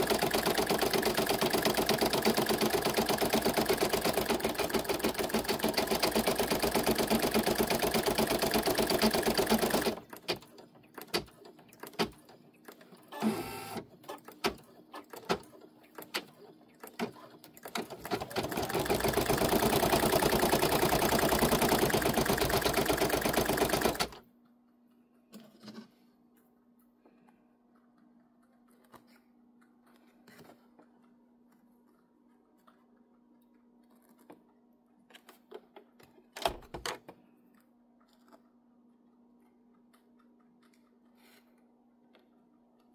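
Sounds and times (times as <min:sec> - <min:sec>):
embroidery machine stitching: 0:00.0 - 0:12.3, 0:13.1 - 0:24.2.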